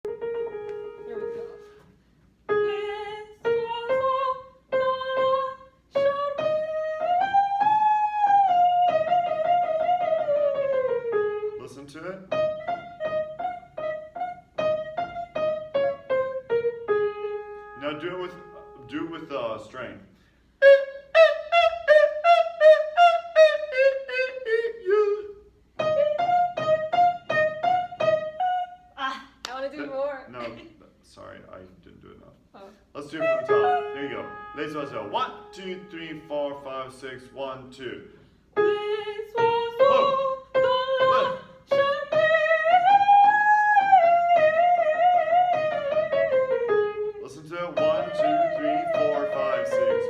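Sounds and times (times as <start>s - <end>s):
piano: 0.0s - 29.0s, 31.2s - 50.0s
soprano singing with vibrato: 2.5s - 10.7s, 20.6s - 25.5s, 32.6s - 37.1s, 38.6s - 46.4s, 47.8s - 50.0s.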